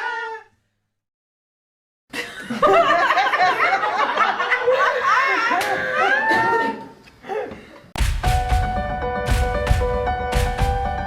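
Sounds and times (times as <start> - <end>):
group of people laughing: 2.1 - 7.6.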